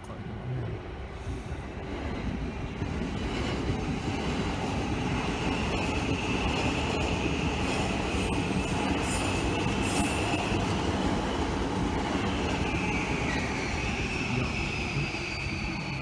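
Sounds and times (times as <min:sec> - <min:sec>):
train rumbling on rails: 0:00.0 - 0:16.0
high wheel squeal: 0:07.6 - 0:10.6, 0:12.5 - 0:16.0.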